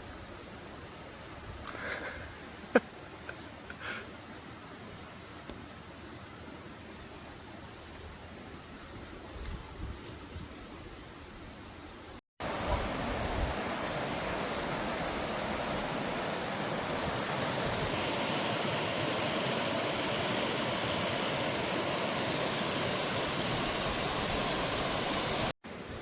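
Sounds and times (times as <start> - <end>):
stream rushing over rocks: 12.4 - 26.0.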